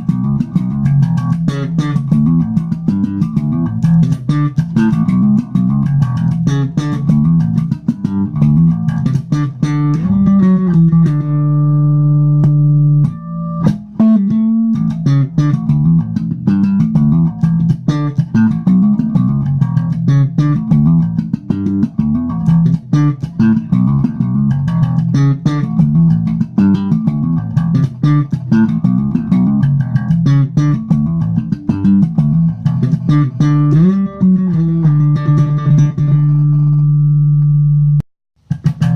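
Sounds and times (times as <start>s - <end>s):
electric bass guitar plucking: 0.0s - 38.9s.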